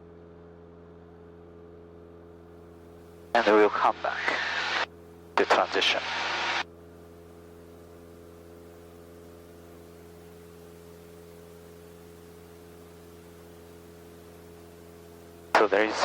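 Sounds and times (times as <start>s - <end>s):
propeller plane engine drone: 2.0s - 16.0s
intercom hiss: 3.4s - 6.6s, 15.6s - 16.0s.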